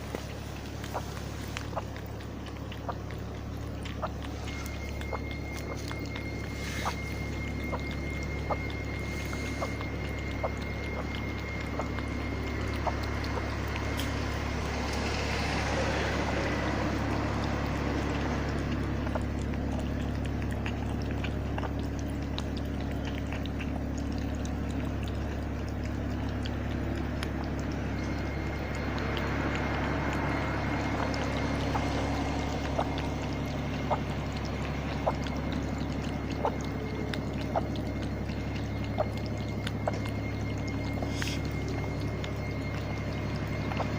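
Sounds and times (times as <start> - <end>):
cat licking clicks: 0.0 - 43.9
low hum: 0.0 - 43.9
watery hiss: 6.6 - 7.0, 41.0 - 41.5.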